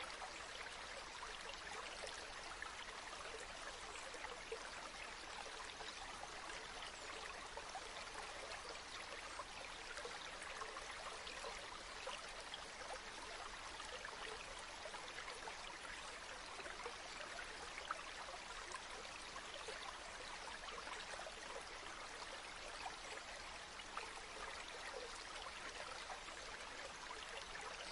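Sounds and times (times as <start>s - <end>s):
stream flowing: 0.0s - 27.9s
water trickling over stones: 0.0s - 27.9s.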